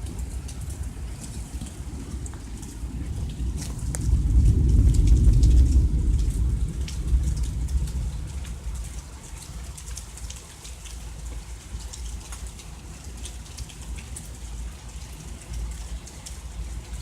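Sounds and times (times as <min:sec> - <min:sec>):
thunder rumbling: 0:00.0 - 0:09.8
raindrops ticking on surfaces: 0:00.0 - 0:17.0
steady rain: 0:00.0 - 0:17.0.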